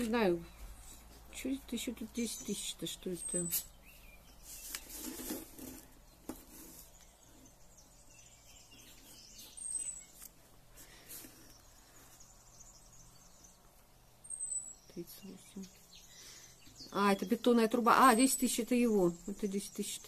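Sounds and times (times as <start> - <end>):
bird chirps: 0.0 - 5.0, 6.1 - 20.0
soft rustles: 3.4 - 7.5.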